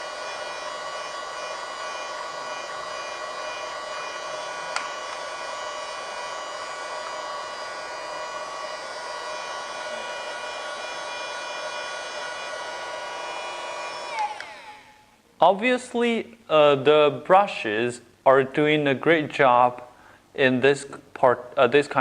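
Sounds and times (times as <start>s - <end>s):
vacuum cleaner motor whine: 0.0s - 15.1s.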